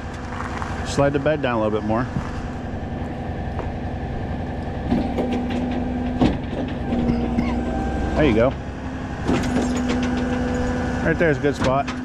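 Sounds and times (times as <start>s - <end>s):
hydraulic whine: 0.0s - 12.0s
truck engine rumble: 0.0s - 12.0s
tow truck bed clunks: 2.9s - 12.0s.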